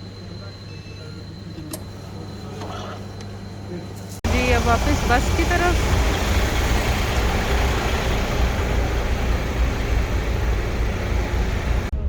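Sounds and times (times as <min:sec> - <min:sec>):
road traffic rumble: 0:04.2 - 0:12.0.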